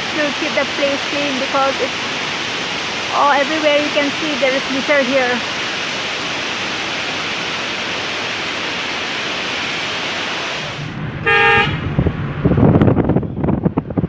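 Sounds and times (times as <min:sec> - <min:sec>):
waterfall rushing: 0:00.0 - 0:11.6
low rumble: 0:10.5 - 0:14.0
vehicle horn toot: 0:11.2 - 0:11.9.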